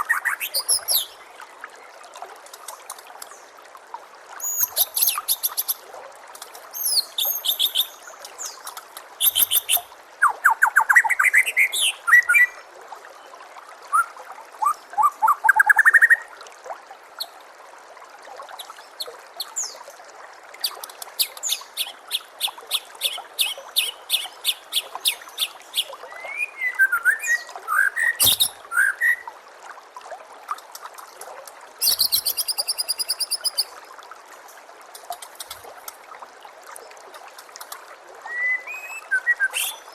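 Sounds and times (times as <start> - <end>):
trickle of running water: 0.0 - 39.9
bird singing whistled phrases: 26.1 - 29.3, 31.8 - 33.7, 38.3 - 39.9.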